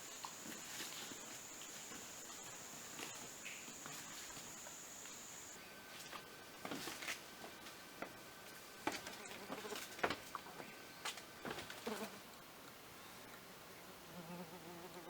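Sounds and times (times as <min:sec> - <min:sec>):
insect trilling: 0:00.0 - 0:05.6.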